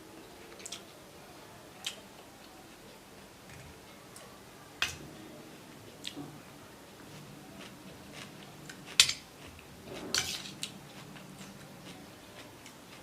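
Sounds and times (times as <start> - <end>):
cutlery clinking on a plate: 9.9 - 10.6.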